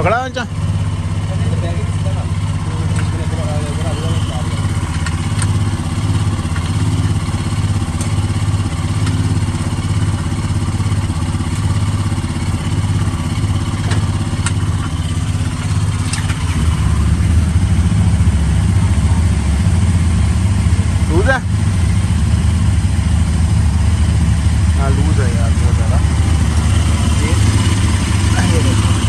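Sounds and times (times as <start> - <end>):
motorcycle engine idling: 0.0 - 29.0
sharp clicks of tightening: 2.4 - 17.4.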